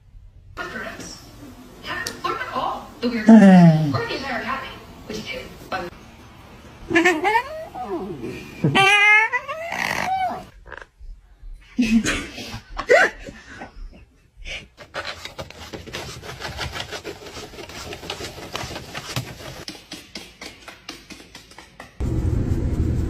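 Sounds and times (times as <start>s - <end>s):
loud steady low rumble: 22.0s - 23.0s.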